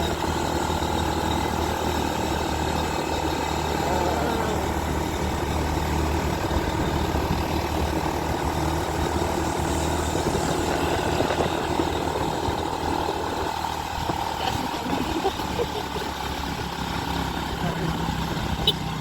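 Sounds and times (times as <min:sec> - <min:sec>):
motorcycle engine running: 0:00.0 - 0:19.0
road noise: 0:00.0 - 0:19.0.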